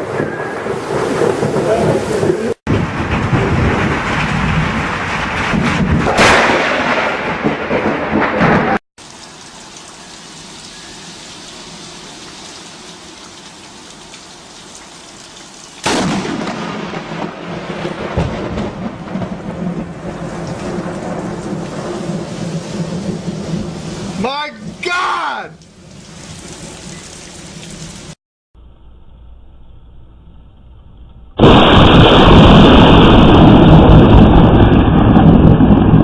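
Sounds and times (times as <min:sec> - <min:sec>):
thunderclaps: 0:00.0 - 0:08.8, 0:15.8 - 0:24.8, 0:31.4 - 0:36.0
rain falling: 0:00.0 - 0:28.2.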